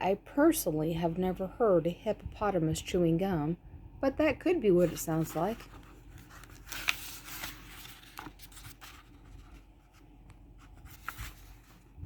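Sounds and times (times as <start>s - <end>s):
book pages rustling: 4.8s - 12.0s.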